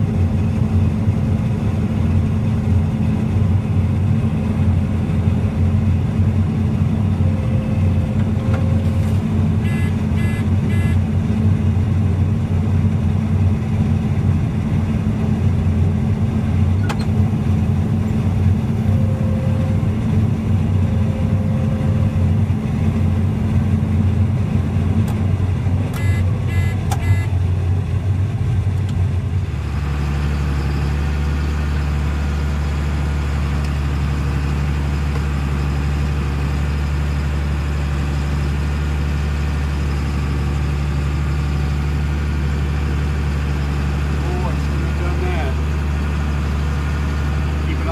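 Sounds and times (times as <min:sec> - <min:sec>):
farm vehicle engine running: 0:00.0 - 0:47.9
high beeps: 0:09.7 - 0:11.0, 0:26.0 - 0:27.3.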